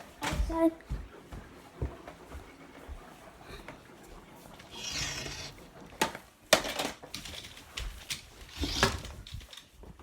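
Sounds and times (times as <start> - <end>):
objects knocking and clattering: 5.9 - 10.0.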